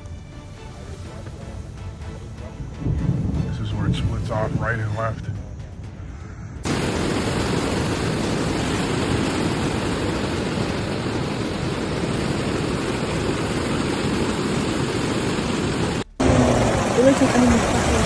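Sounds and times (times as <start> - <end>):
floodwater rushing: 6.7 - 18.0.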